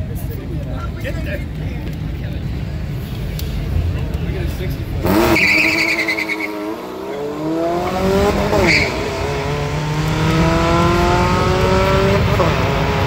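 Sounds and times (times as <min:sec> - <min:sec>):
drag car engine accelerating: 0:04.6 - 0:13.0
high tyre squeal: 0:05.2 - 0:07.5, 0:08.4 - 0:09.4.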